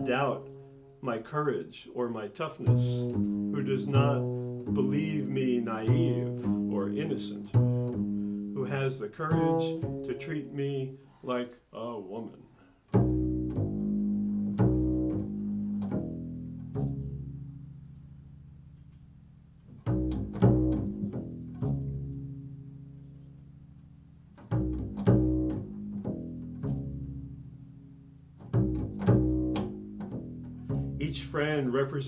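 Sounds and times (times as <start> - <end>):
plucked low string notes: 0.0 - 1.2, 2.6 - 10.3, 13.0 - 32.0.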